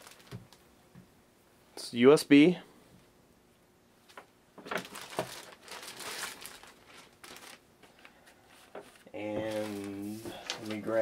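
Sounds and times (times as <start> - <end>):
packaging crinkling and rustling: 0.0 - 0.6, 4.2 - 11.0.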